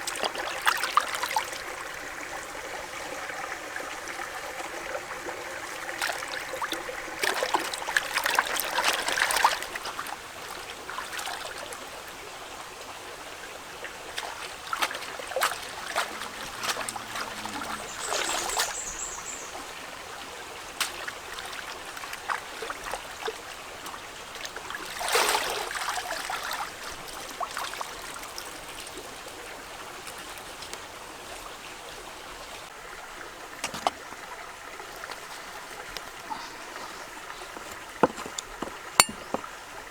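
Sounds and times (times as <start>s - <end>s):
water splashing: 0.0s - 11.9s, 13.3s - 29.4s
water trickling: 0.0s - 39.9s.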